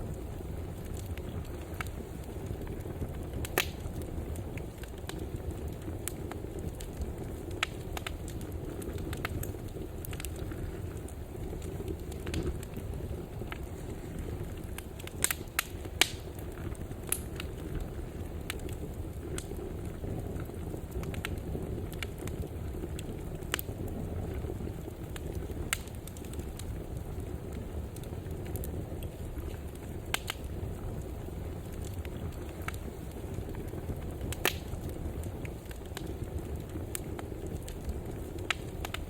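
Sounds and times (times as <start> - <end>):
fire crackles and pops: 0.0 - 39.0
fire rumbling: 0.0 - 39.0.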